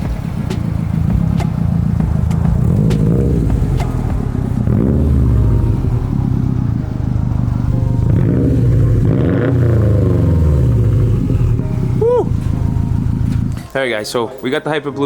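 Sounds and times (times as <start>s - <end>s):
car engine running at low speed: 0.0s - 13.6s.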